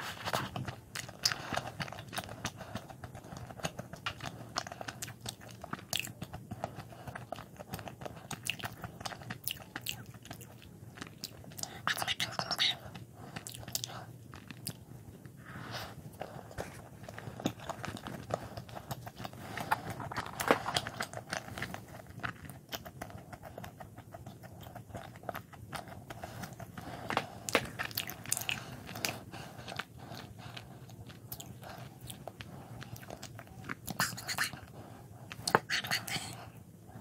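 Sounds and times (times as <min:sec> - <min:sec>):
chewing a soft bun: 0:00.0 - 0:37.0
wet mouth clicks: 0:32.9 - 0:34.7, 0:35.3 - 0:36.4.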